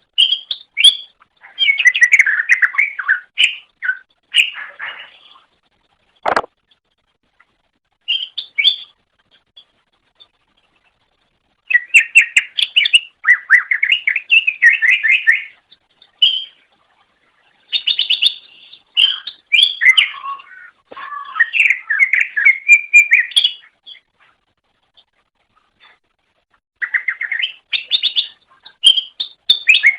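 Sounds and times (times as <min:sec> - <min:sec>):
sharp click: 0:06.2 - 0:06.5.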